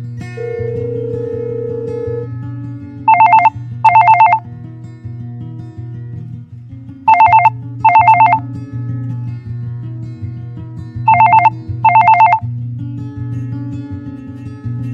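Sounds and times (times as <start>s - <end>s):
telephone ringing: 3.1s - 4.4s, 7.1s - 8.4s, 11.1s - 12.4s.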